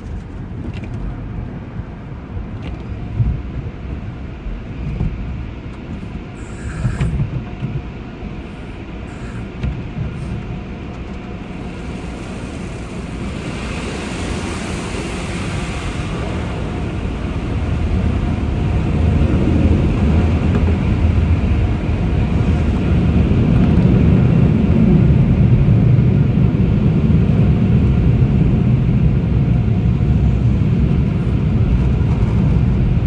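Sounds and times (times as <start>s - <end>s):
car rumbling on the move: 0.0s - 33.0s
hiss: 6.4s - 7.2s, 8.4s - 10.4s, 11.4s - 23.0s.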